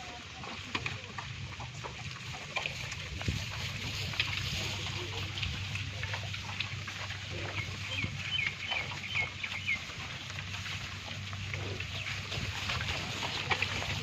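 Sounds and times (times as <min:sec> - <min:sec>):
steady low hum: 0:00.0 - 0:14.0
bird chirping: 0:07.4 - 0:09.9.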